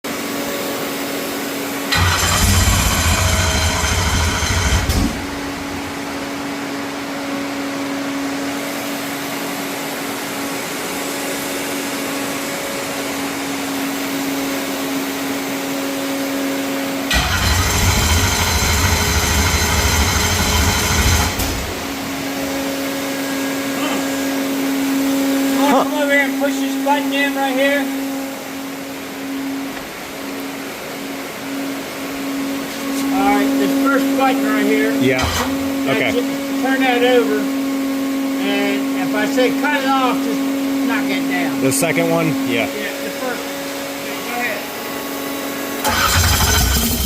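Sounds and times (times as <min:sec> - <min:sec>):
low mechanical running: 0:00.1 - 0:47.0
electric motor whine: 0:01.9 - 0:06.4.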